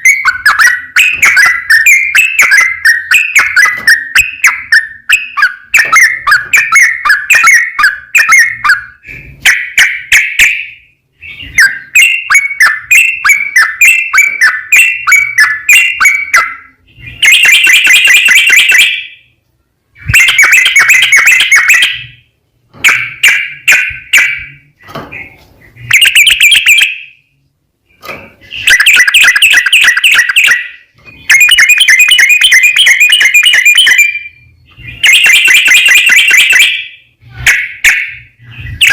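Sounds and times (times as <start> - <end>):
bird singing bubbly rapid song: 0.0 - 19.2, 27.9 - 37.1.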